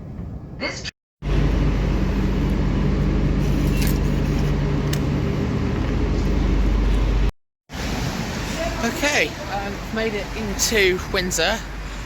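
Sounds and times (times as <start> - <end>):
electric train rumbling: 1.2 - 12.0.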